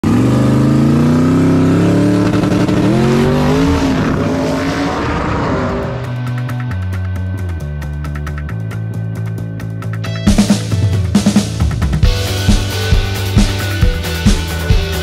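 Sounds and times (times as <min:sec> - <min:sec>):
drag car engine accelerating: 0:00.0 - 0:08.8
music with a beat: 0:06.1 - 0:15.0.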